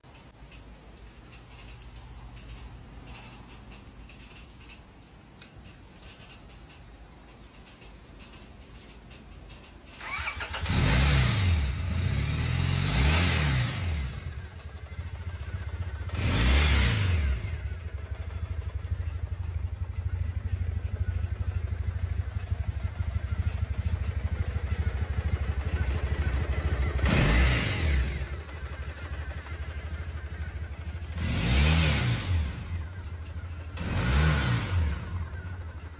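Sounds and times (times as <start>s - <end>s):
motorcycle engine starting: 0.2s - 35.9s
motorcycle engine idling: 0.3s - 35.9s
motorcycle engine revving: 10.0s - 35.9s.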